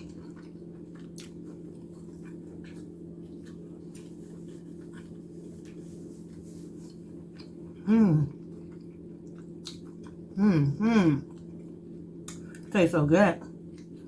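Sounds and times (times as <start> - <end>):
close-up chewing: 0.0 - 10.4
steady low hum: 0.0 - 14.0.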